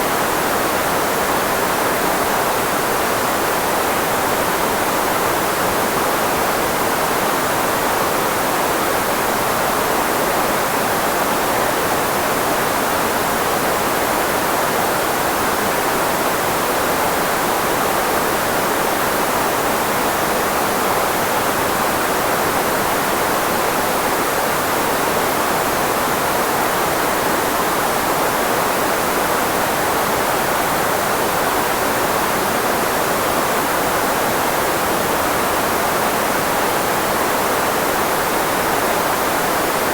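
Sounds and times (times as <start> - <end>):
filtered white noise hiss: 0.0 - 39.9.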